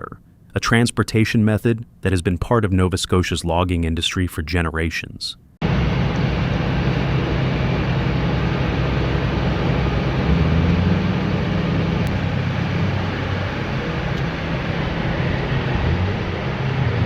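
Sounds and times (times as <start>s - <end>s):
heavy engine rumbling: 5.6s - 17.0s.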